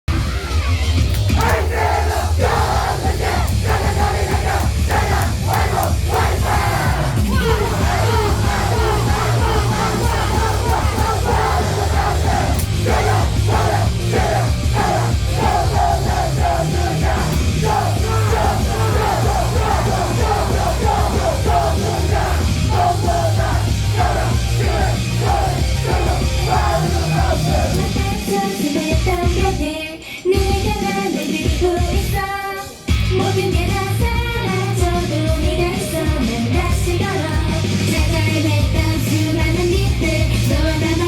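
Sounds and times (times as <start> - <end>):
live rock music with shouted vocals: 1.4 - 29.6.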